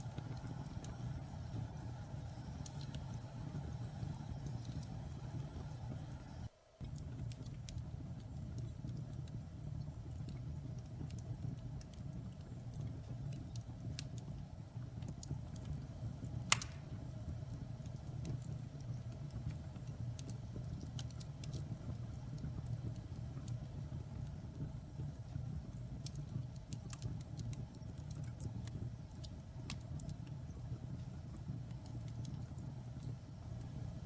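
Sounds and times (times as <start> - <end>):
fire crackling: 0.0 - 34.0
wood fire pop: 15.0 - 23.7.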